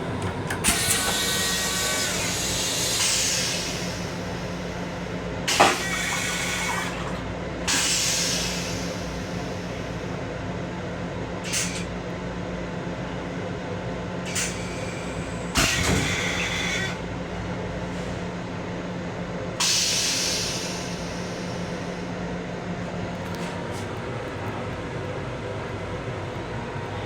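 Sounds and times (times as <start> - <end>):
electric railcar hum: 0.0 - 27.0
loud air hiss: 0.7 - 6.9, 7.7 - 9.8, 19.6 - 22.1.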